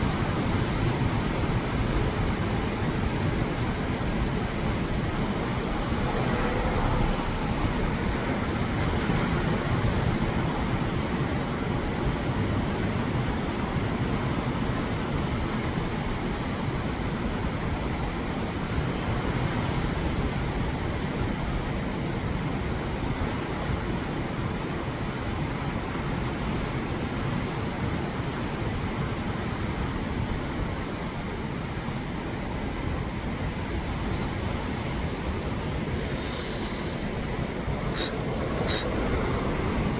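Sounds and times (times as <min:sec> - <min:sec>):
ocean surf rushing: 0:01.4 - 0:10.1, 0:34.8 - 0:39.9
wind buffeting microphone: 0:02.0 - 0:09.8, 0:34.8 - 0:39.9
short high hiss: 0:35.9 - 0:39.9.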